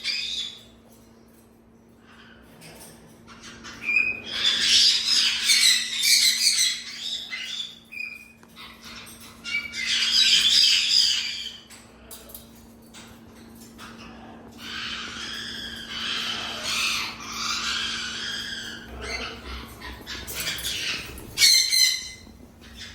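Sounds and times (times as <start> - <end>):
parrot screeching: 0.0 - 0.6, 3.3 - 11.7, 13.8 - 22.9.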